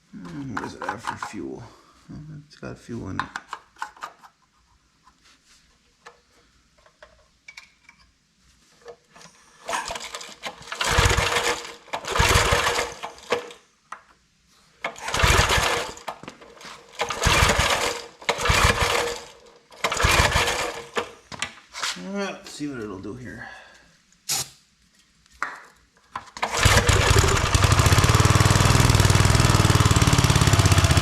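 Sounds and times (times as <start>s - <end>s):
engine being pull-started: 9.7s - 13.6s, 14.8s - 16.2s, 16.8s - 21.2s, 26.3s - 31.0s.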